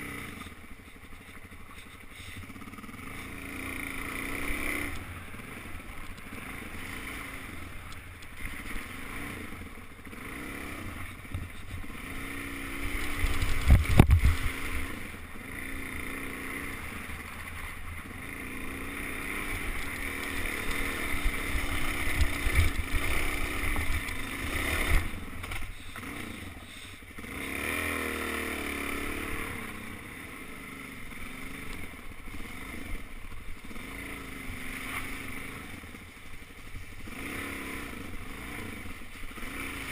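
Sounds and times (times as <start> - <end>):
dirt bike engine revving: 0.0 - 39.9
wind rumble on microphone: 13.2 - 14.7.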